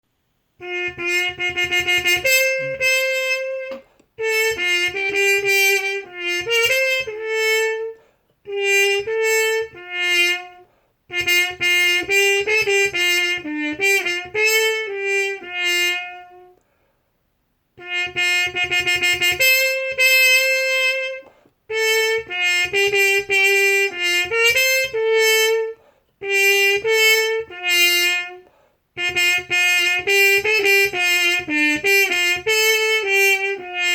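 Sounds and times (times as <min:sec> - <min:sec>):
solo trumpet melody: 0:00.6 - 0:16.6, 0:17.7 - 0:33.9.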